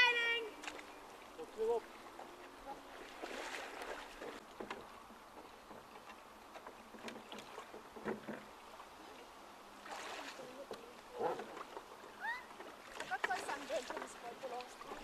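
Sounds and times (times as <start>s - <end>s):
water lapping against boats: 0.0s - 15.0s
small clicks and knocks: 5.4s - 8.4s.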